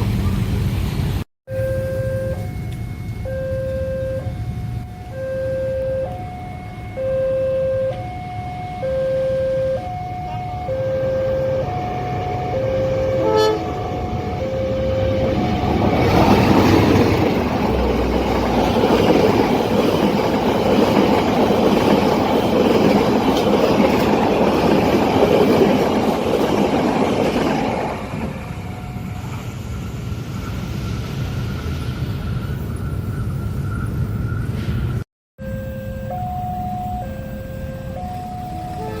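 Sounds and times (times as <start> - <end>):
level crossing alarm two tones: 1.5 - 17.9, 35.4 - 39.0
train wheels rushing on rails: 11.1 - 35.0.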